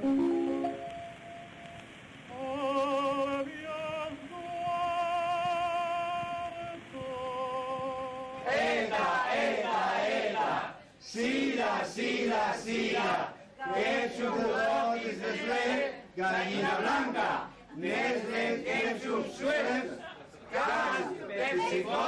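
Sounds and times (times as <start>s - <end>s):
person singing operatically: 2.3s - 9.9s
voices chanting: 8.2s - 22.0s.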